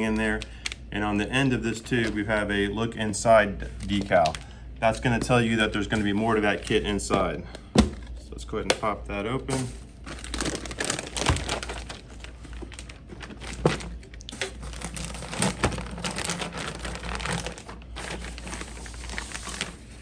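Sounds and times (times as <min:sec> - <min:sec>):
plastic wrap crinkling: 0:03.5 - 0:06.8, 0:09.5 - 0:20.0.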